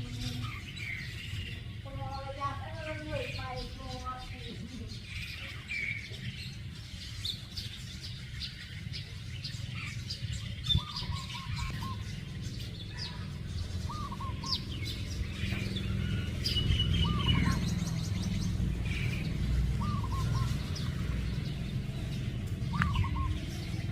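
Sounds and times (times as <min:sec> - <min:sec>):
birds chirping: 0:00.0 - 0:23.9
whistled bird notes: 0:05.2 - 0:21.0, 0:22.7 - 0:23.8.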